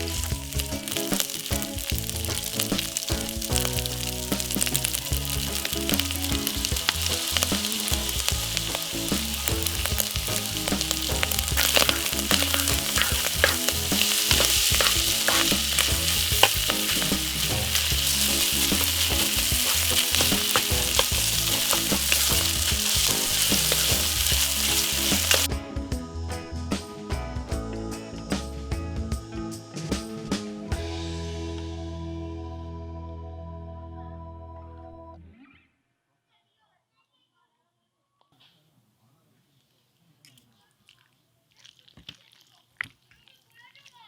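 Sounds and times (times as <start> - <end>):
food sizzling in a pan: 0.0 - 25.5
utensil scraping a pan: 0.0 - 25.5.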